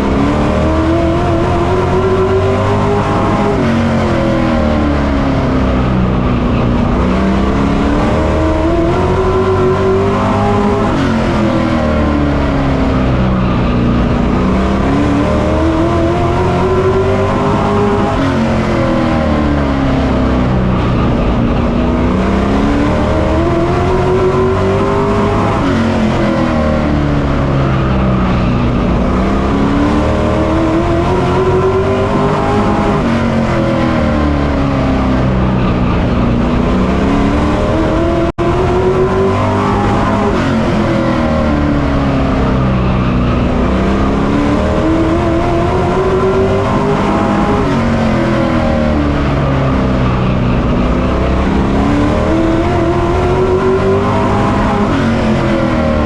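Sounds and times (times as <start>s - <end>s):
race truck engine accelerating: 0.0s - 56.0s.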